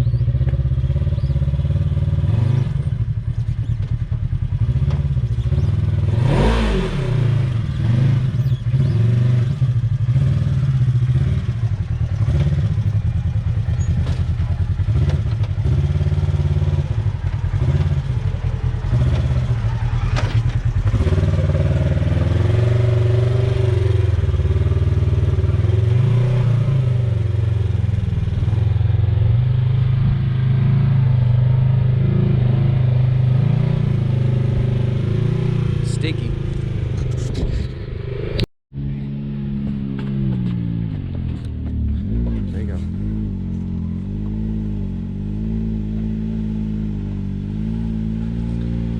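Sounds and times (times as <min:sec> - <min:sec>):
utility vehicle engine revving: 0:00.0 - 0:48.9
clatter: 0:02.8 - 0:06.1, 0:11.4 - 0:22.2, 0:39.6 - 0:44.4.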